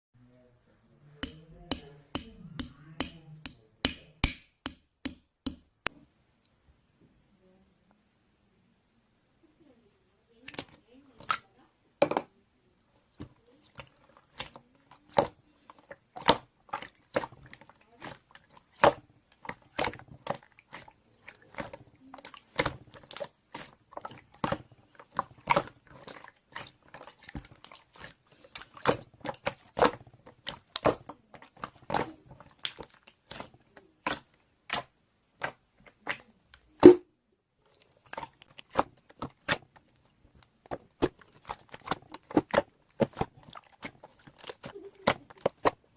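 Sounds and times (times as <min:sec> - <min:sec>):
sharp clicks and taps: 0:01.2 - 0:06.0.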